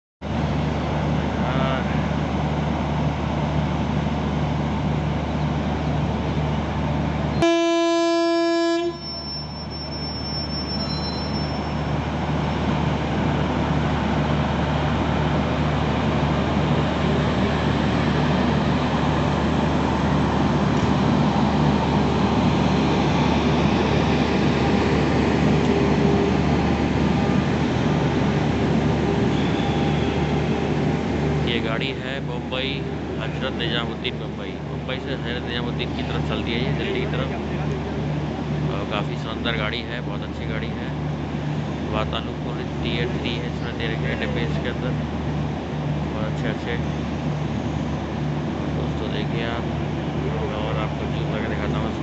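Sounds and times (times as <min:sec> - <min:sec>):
train passing with rumble: 0:00.2 - 0:08.1, 0:08.9 - 0:52.0
train horn blast: 0:07.4 - 0:09.3, 0:29.3 - 0:30.4.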